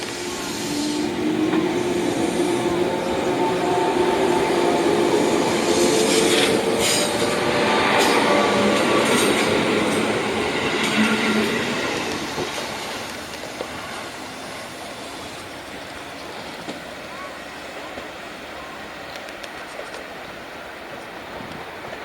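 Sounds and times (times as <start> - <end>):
train wheels on rails: 0.0 - 22.0
clacks over rail joints: 6.0 - 14.0.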